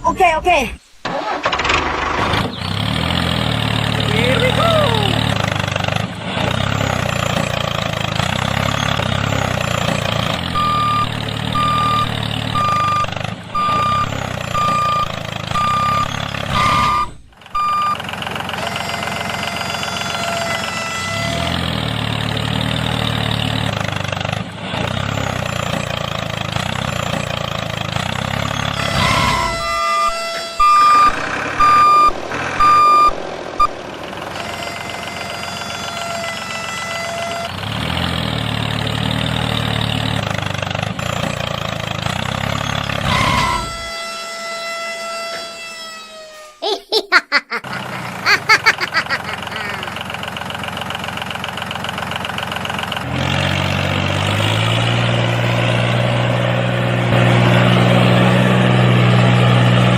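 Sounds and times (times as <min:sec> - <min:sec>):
vehicle engine running: 0:01.1 - 0:43.9, 0:47.6 - 0:59.9
reversing alarm beeping: 0:08.6 - 0:18.0, 0:28.5 - 0:33.8, 0:43.0 - 0:46.6.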